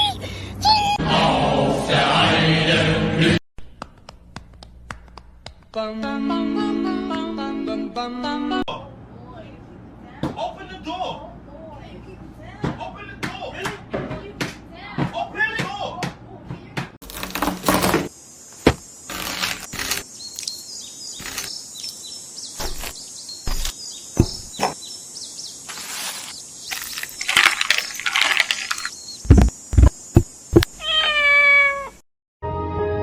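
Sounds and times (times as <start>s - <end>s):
loud thumps: 17.0s - 18.9s, 22.6s - 24.8s, 29.2s - 30.8s
rustling: 25.6s - 30.7s
cat meowing: 30.8s - 32.0s.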